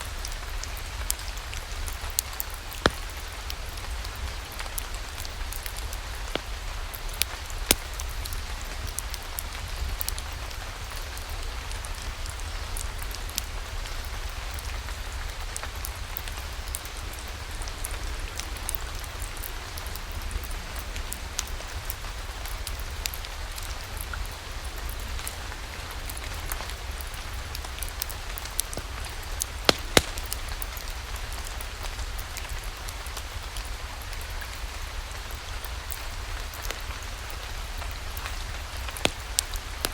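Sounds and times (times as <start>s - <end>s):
steady rain falling: 0.0s - 39.9s
wood fire popping: 0.1s - 11.3s, 21.4s - 39.9s.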